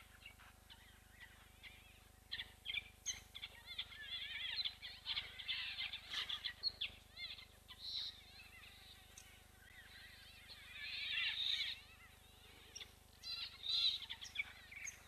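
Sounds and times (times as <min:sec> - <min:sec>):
wild birds chirping and trilling: 0:00.0 - 0:15.0.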